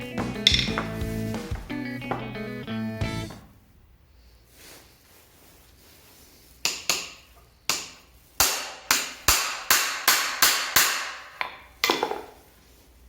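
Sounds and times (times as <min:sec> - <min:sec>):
sharp ringing knocks: 0:00.2 - 0:01.0.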